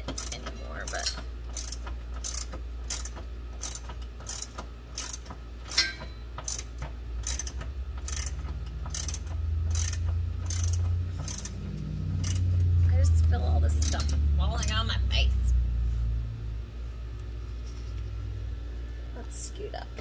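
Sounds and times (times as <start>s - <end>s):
hand ratchet clicking: 0.0s - 14.2s
low steady hum: 0.0s - 20.0s.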